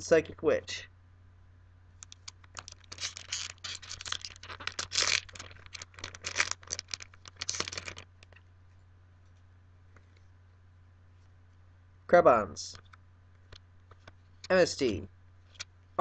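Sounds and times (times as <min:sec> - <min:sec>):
foil wrapper tearing and crinkling: 0:02.1 - 0:08.4.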